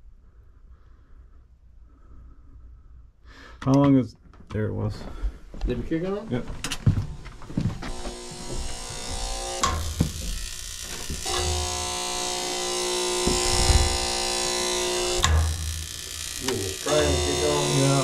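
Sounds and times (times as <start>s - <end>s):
furnace motor buzzing: 6.6s - 18.0s.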